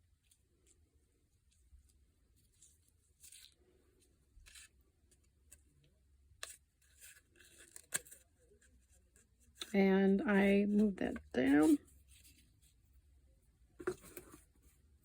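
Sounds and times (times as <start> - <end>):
paper rustling on a tabletop: 0.2 - 5.6, 11.1 - 12.8.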